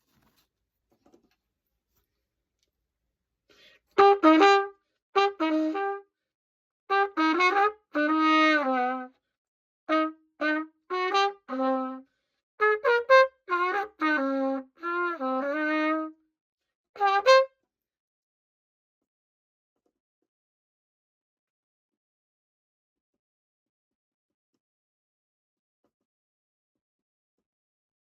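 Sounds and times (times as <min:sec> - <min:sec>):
cornet playing: 0:04.0 - 0:06.0, 0:06.9 - 0:09.1, 0:09.9 - 0:12.0, 0:12.6 - 0:16.2, 0:17.0 - 0:17.5.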